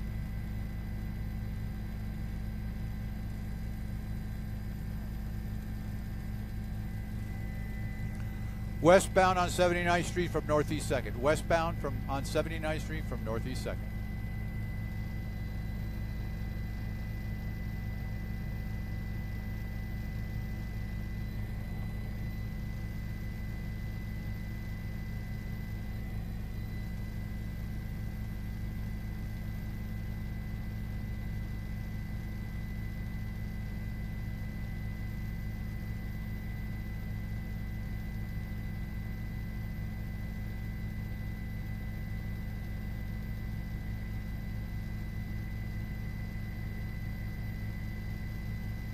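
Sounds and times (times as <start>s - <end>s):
faint high whine: 0.0s - 48.9s
low vehicle drone: 5.6s - 16.3s.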